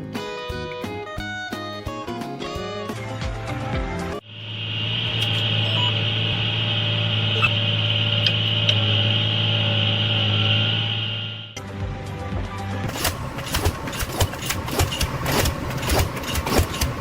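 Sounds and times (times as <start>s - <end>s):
machine humming and whining: 4.2s - 11.6s, 12.8s - 17.0s.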